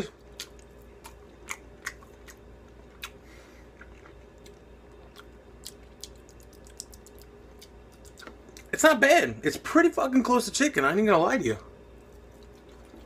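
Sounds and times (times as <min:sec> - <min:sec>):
low steady hum: 0:00.0 - 0:13.0
wet mouth chewing clicks: 0:03.8 - 0:08.7.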